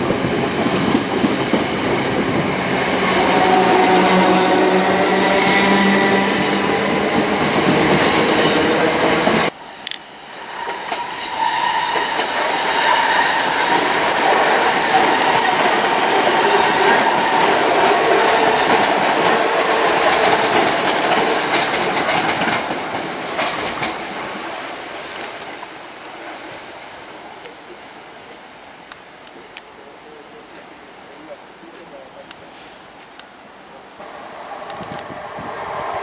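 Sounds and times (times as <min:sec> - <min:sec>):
electric train running past: 0:00.0 - 0:25.0, 0:34.0 - 0:36.0
train departing: 0:00.0 - 0:28.7, 0:29.3 - 0:36.0
wheels clicking over rail joints: 0:11.9 - 0:26.2.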